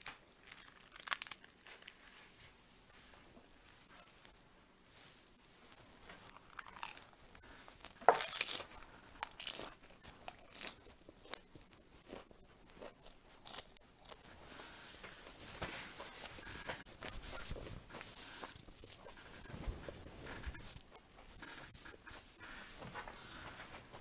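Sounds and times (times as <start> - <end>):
crisp crunching bites of lettuce: 0.0 - 2.0, 6.0 - 14.8
wet chewing and lip smacks: 6.3 - 14.4.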